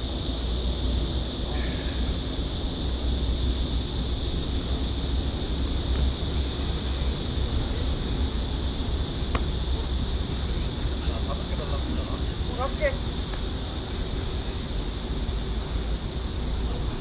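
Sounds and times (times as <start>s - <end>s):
high hiss: 0.0s - 17.0s.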